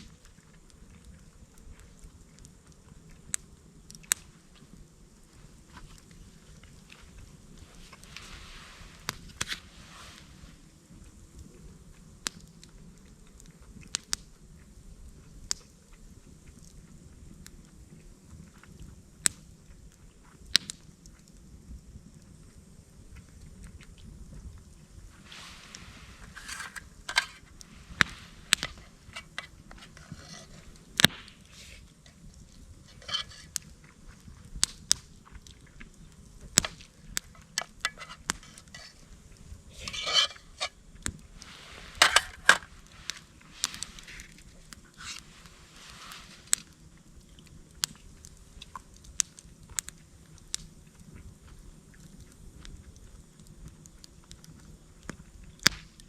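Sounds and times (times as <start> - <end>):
scraping and rustling: 25.2 - 33.7, 37.2 - 46.6
small objects clicking and knocking: 26.2 - 31.4, 32.9 - 33.6, 36.6 - 40.8, 42.0 - 42.7.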